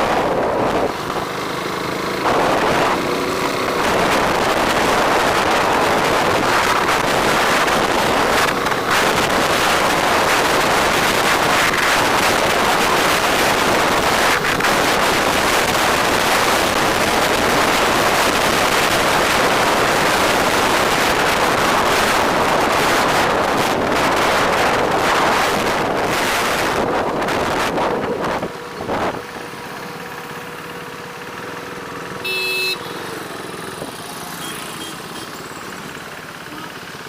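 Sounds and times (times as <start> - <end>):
vehicle and road noise: 0.0 - 37.0
wind rush over microphone: 3.8 - 29.2.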